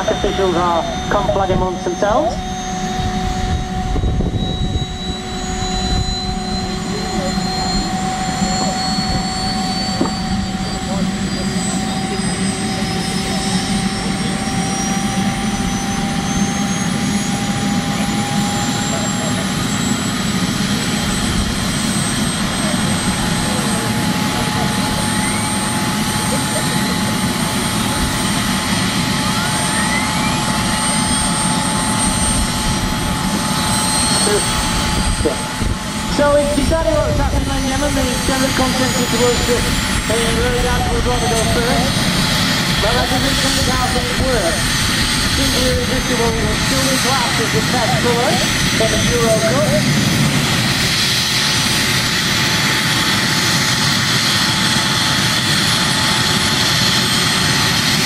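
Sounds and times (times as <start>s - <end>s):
gas turbine engines rushing: 0.0s - 58.0s
high turbine whine: 0.0s - 58.0s.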